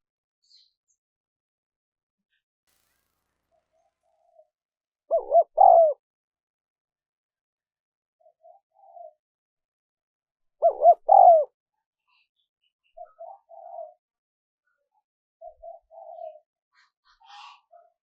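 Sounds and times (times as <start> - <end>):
doves cooing: 5.1 - 6.0, 10.6 - 11.5.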